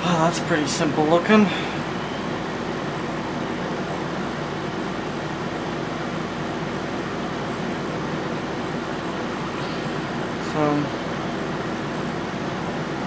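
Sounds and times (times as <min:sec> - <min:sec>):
fan hum and hiss: 0:00.0 - 0:13.0.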